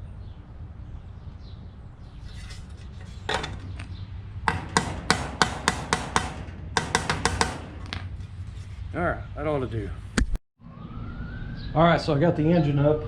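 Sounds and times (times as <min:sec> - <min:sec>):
hammer blows on sheet metal: 0:04.5 - 0:08.1.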